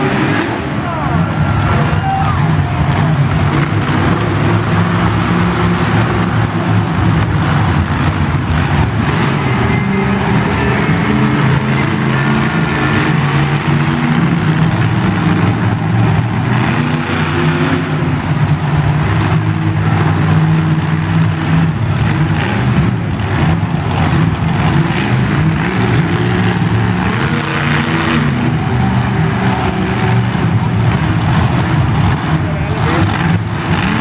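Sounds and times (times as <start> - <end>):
truck engines revving: 0.0 - 34.0.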